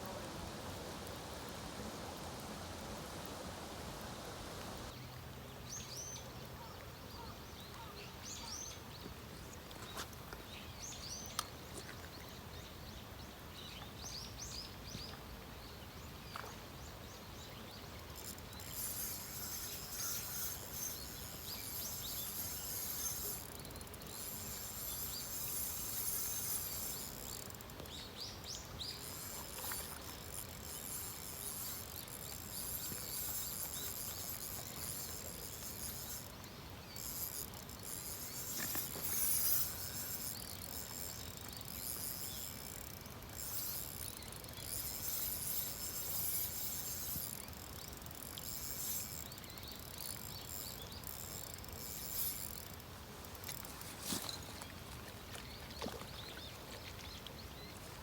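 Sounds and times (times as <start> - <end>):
rain hissing: 0.0 - 4.9
small birds chirping: 5.6 - 58.0.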